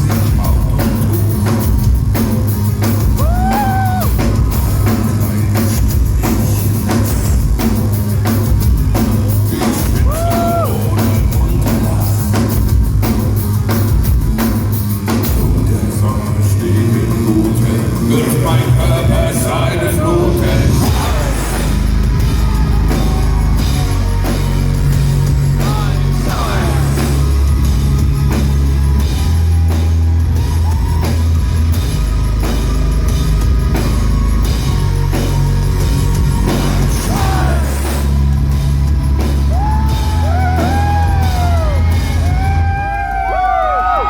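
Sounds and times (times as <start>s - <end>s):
heavy bass line: 0.0s - 44.0s
live metal music: 0.0s - 44.0s
pounding drums: 0.0s - 44.0s
audience shouting and whooping: 3.1s - 4.5s, 9.9s - 11.0s, 20.9s - 27.1s, 28.8s - 32.6s, 39.3s - 44.0s.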